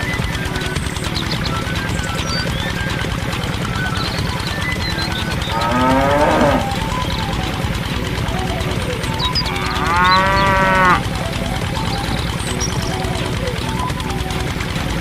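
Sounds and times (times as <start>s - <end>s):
cow mooing: 5.5s - 6.8s, 9.4s - 11.0s.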